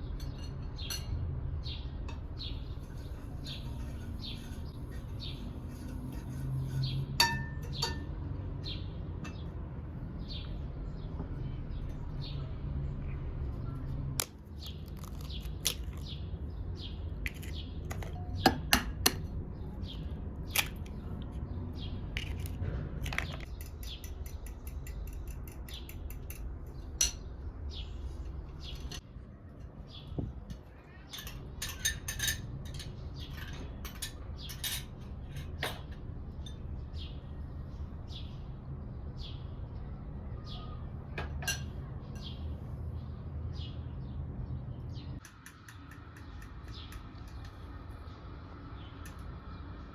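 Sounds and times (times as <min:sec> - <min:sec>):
metal utensils clinking on dishes: 0:00.0 - 0:01.3, 0:02.1 - 0:09.5, 0:22.2 - 0:27.3, 0:28.5 - 0:29.0, 0:30.5 - 0:36.7, 0:41.2 - 0:42.4, 0:45.2 - 0:47.5
birds chirping: 0:00.0 - 0:49.9.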